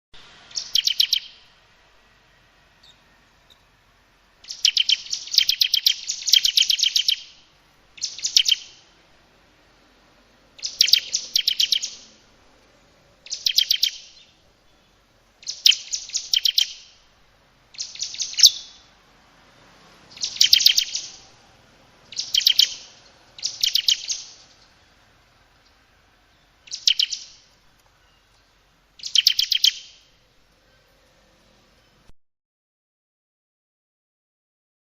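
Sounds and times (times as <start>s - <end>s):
bird rattling calls: 10.6s - 12.2s, 17.7s - 18.9s, 20.1s - 21.3s, 22.0s - 25.0s.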